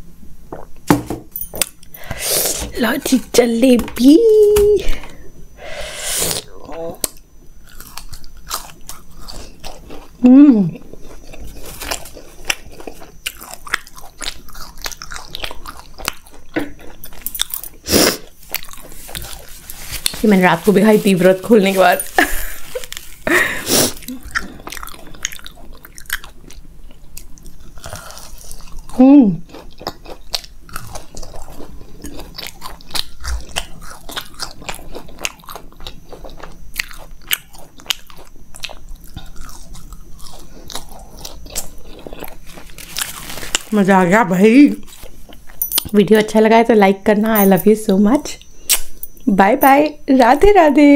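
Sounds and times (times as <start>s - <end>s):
crunchy food being chewed: 6.2s - 46.2s.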